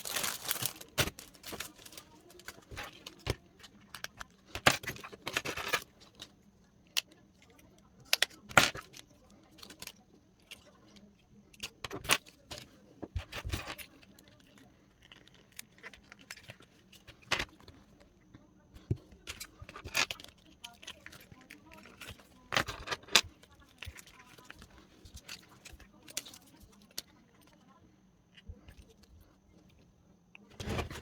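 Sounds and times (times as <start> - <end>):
small metal pieces clinking: 0.0 - 3.4
rustling: 0.0 - 6.4.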